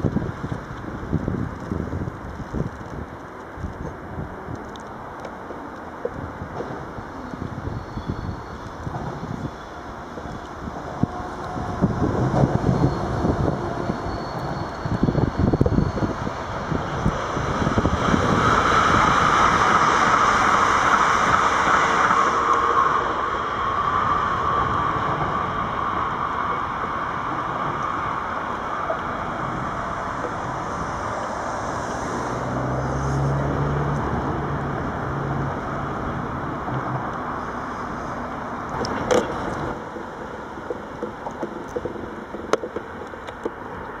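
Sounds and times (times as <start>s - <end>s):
electric train passing: 0.0s - 44.0s
wind on microphone: 0.0s - 44.0s
car engine hum: 9.0s - 44.0s.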